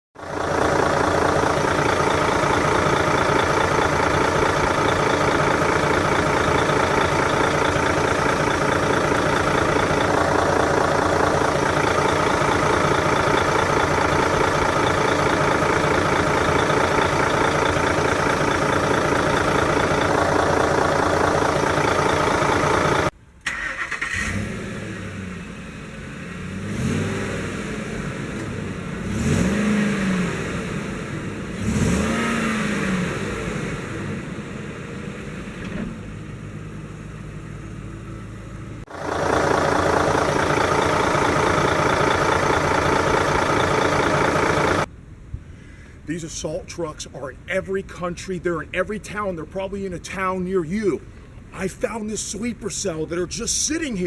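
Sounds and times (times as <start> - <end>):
truck engine running: 0.2 - 23.2, 27.7 - 44.9
engine revving: 0.2 - 35.6, 38.9 - 44.9.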